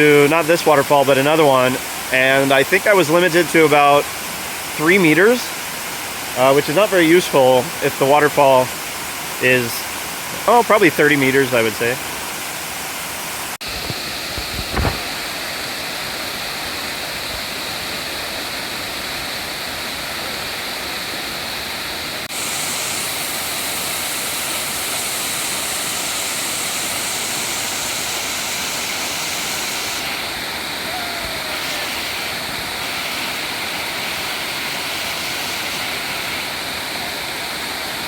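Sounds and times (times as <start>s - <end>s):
waterfall rushing: 0.0s - 38.0s
low thump: 14.4s - 15.1s.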